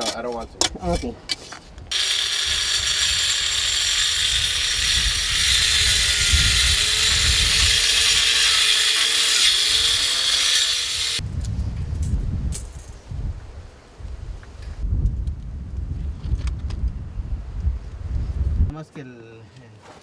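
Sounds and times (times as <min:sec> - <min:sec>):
power cutting tool whining: 0:01.9 - 0:11.2.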